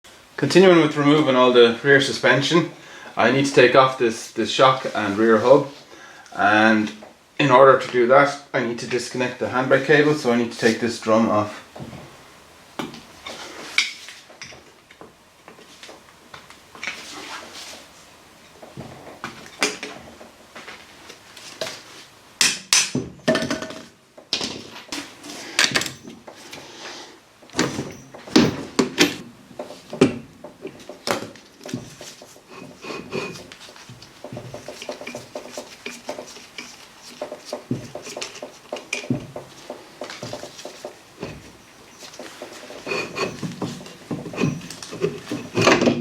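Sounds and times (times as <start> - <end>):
metal car parts clanking: 27.5 - 30.2, 34.3 - 46.0.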